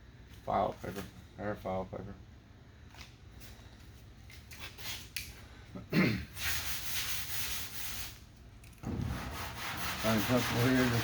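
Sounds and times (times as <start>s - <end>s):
sanding block scraping: 6.4s - 8.2s, 9.0s - 11.0s
thump: 8.8s - 9.2s.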